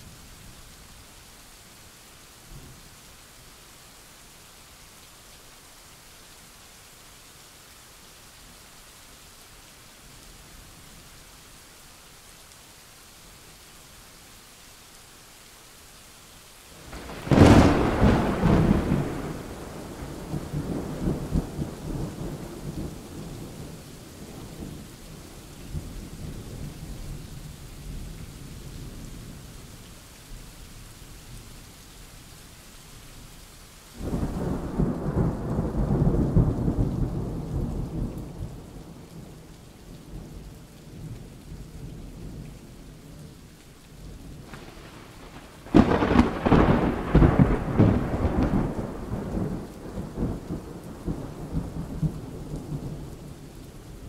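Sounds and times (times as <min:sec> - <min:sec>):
steady rain: 0:00.0 - 0:54.0
thunder rumbling: 0:16.9 - 0:23.8, 0:34.0 - 0:39.0, 0:44.4 - 0:53.1.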